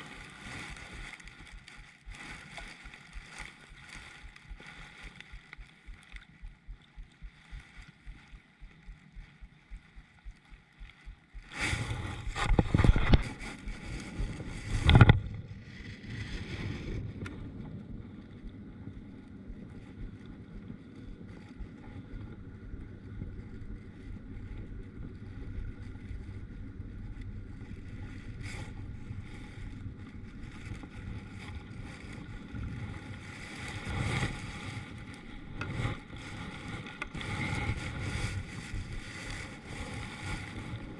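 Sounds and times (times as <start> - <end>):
soft regular thumps: 0.0 - 15.5, 17.1 - 32.2
water sloshing at hull: 0.0 - 40.9
wind on microphone: 0.0 - 40.9.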